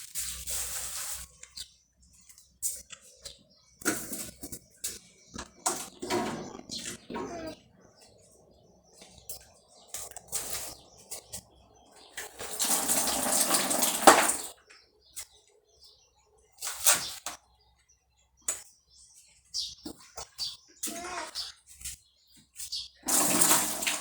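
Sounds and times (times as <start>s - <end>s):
items knocking and clattering: 3.8s - 7.5s, 12.1s - 14.6s
water running: 12.2s - 14.5s, 23.0s - 24.0s.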